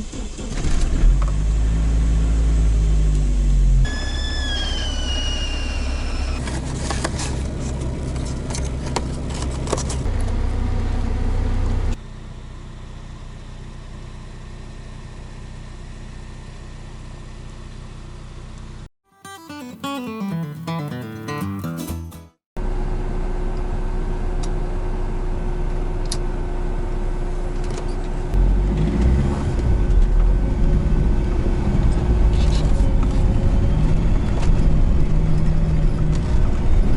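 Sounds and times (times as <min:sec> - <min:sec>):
vehicle engine rumbling: 0:00.0 - 0:18.9, 0:22.6 - 0:36.9
falling whistle: 0:03.9 - 0:06.4
descending guitar-like music phrase: 0:19.1 - 0:22.3.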